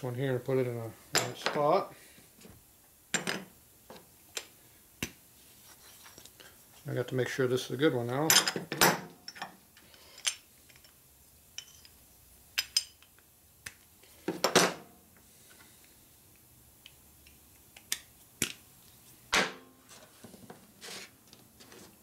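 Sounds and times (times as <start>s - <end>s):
metal parts clinking on a bench: 8.3s - 11.0s, 11.6s - 12.0s, 12.6s - 13.2s.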